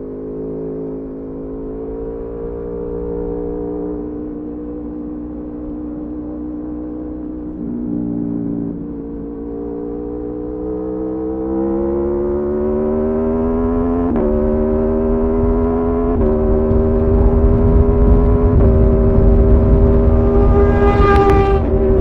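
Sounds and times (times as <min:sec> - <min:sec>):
motorcycle engine accelerating: 0:00.0 - 0:22.0
wind rumble: 0:13.5 - 0:22.0.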